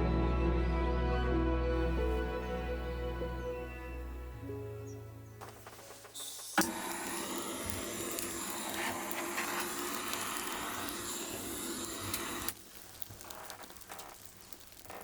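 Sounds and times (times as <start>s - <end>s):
small motor appliance whirring: 6.2s - 12.6s.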